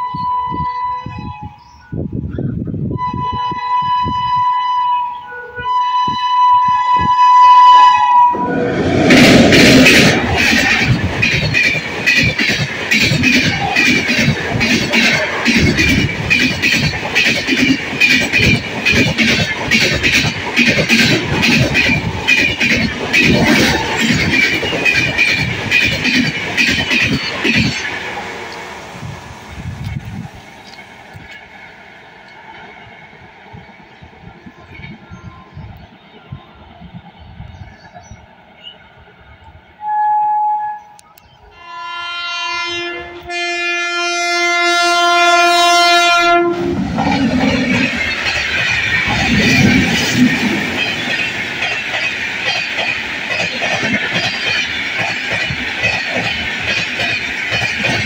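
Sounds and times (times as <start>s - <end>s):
locomotive horn: 0.0s - 1.6s, 2.9s - 8.9s, 39.8s - 46.8s
train wheels clattering over joints: 9.0s - 28.2s, 46.8s - 58.0s.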